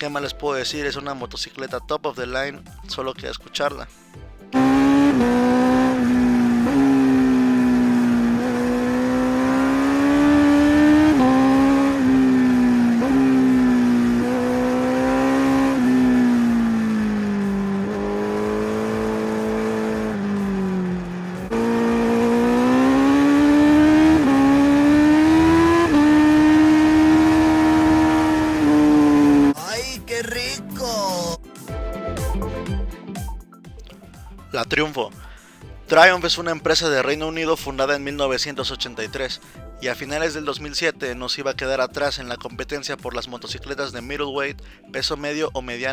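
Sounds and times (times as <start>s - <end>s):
motorcycle engine revving hard: 4.5s - 29.6s.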